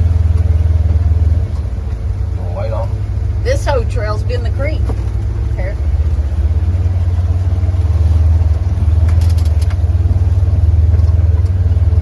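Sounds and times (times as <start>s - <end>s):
vehicle engine droning: 0.0s - 12.0s
clicks and rattles: 8.9s - 10.1s.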